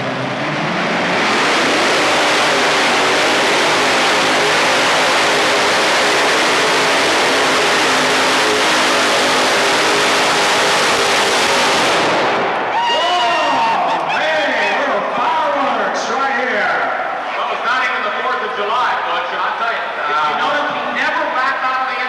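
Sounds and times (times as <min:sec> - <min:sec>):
tractor engine at full throttle: 0:00.0 - 0:12.7.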